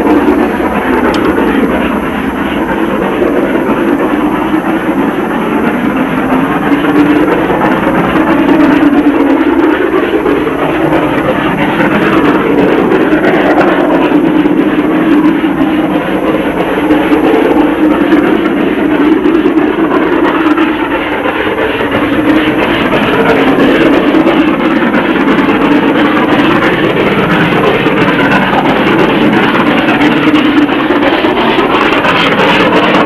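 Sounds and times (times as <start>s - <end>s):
rumble of train: 0.0s - 33.0s
steam locomotive exhaust beats: 0.0s - 33.0s.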